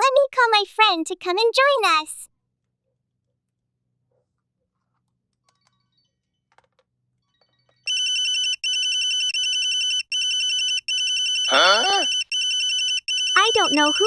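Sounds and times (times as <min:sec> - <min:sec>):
phone ringtone ringing: 0:07.9 - 0:14.0.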